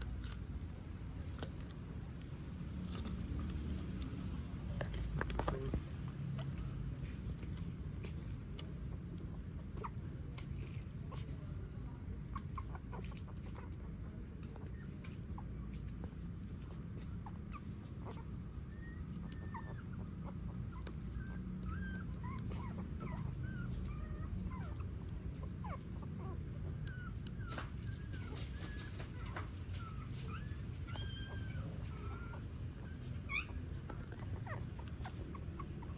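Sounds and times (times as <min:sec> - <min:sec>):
steady low hum: 0:00.0 - 0:35.9
newborn puppies squeaking: 0:08.9 - 0:11.3, 0:11.9 - 0:35.9.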